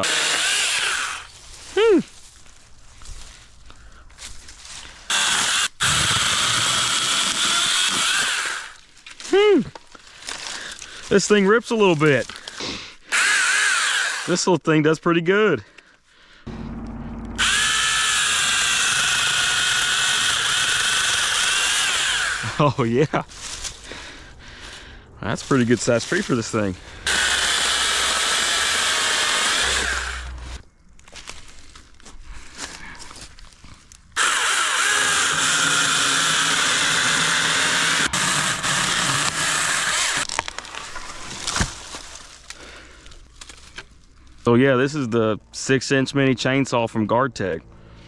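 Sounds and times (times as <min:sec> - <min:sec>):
mini chainsaw whining: 0:00.0 - 0:01.3, 0:05.1 - 0:08.8, 0:13.1 - 0:14.5, 0:16.5 - 0:22.8, 0:27.0 - 0:30.6, 0:34.2 - 0:41.6.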